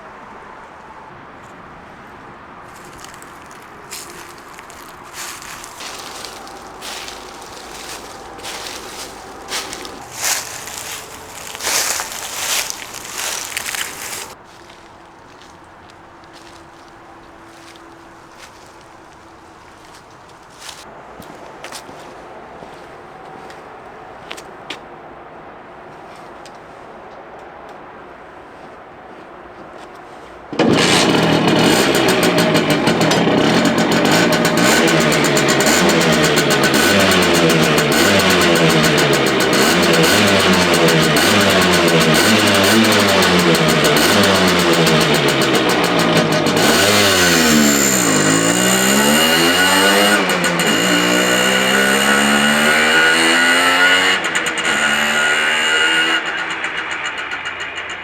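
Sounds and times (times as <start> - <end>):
moped engine starting and running: 2.7 - 15.5, 30.5 - 58.0.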